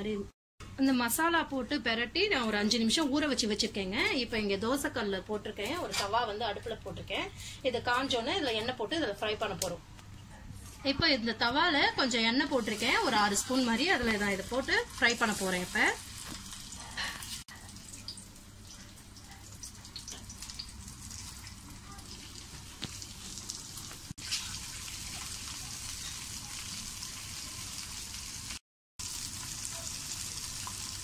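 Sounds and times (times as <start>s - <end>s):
oil sizzling and crackling: 12.4s - 31.0s.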